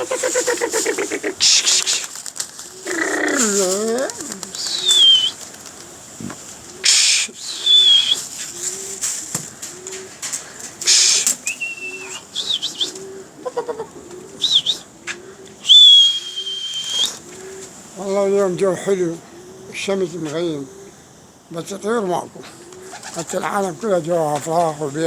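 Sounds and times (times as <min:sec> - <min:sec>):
brief rustles: 0:00.0 - 0:13.1
pigeons cooing: 0:00.0 - 0:25.0
high falling whistled calls: 0:03.4 - 0:05.4, 0:06.8 - 0:08.8, 0:10.8 - 0:13.1, 0:14.4 - 0:14.9, 0:15.6 - 0:17.3.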